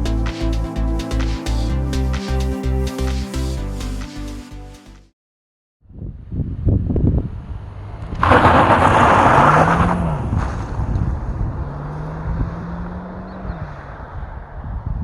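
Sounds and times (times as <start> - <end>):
car engine accelerating: 7.2 - 14.9
loud rushing noise: 8.2 - 11.6.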